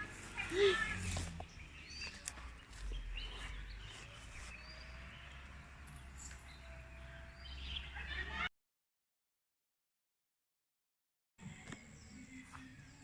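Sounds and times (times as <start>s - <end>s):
birds chirping: 0.0s - 8.5s.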